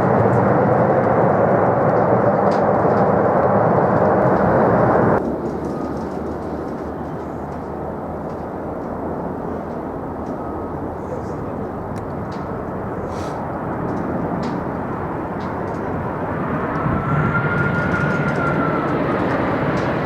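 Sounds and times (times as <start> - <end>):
jet engines rumbling: 0.0 - 20.0
faint engine whine: 4.2 - 20.0.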